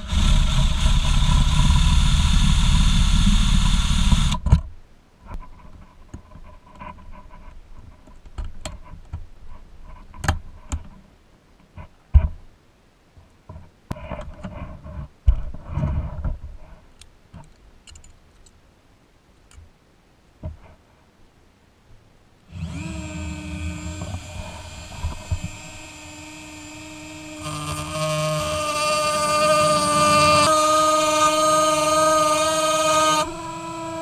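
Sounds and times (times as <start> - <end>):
cutting disc on metal: 0.0 - 4.4, 22.6 - 34.0
rotary tool whining: 0.0 - 4.5, 22.5 - 34.0.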